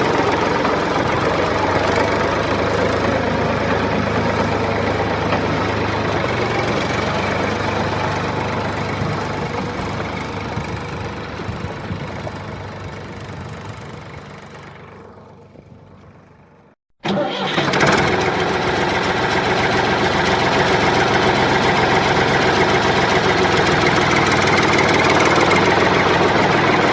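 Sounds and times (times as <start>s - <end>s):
small tractor motor running: 0.0s - 26.9s.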